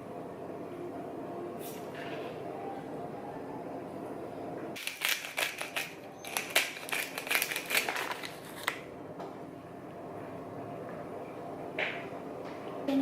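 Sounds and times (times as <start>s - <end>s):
small hard objects clicking: 4.8s - 8.2s.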